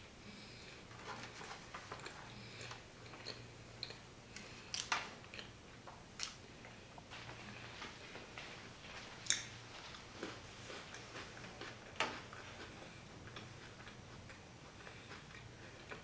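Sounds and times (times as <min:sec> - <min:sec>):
wet chewing: 0:09.2 - 0:16.0.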